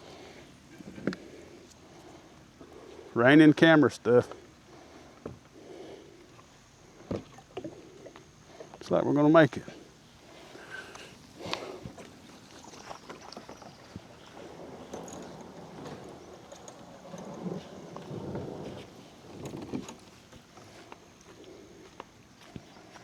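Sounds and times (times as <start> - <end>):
small knocks and clicks from boat: 0.8 - 1.8, 5.1 - 5.6, 6.3 - 8.8, 10.5 - 23.0
water sloshing against hull: 4.3 - 8.8, 9.8 - 21.6.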